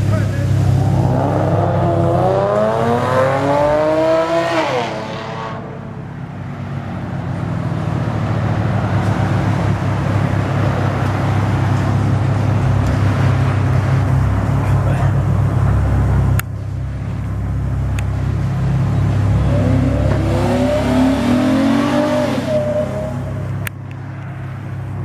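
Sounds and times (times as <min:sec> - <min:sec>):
rumble of engines: 0:00.0 - 0:25.0
car engine accelerating hard: 0:00.1 - 0:05.9, 0:07.6 - 0:23.7
low drone: 0:00.4 - 0:04.4.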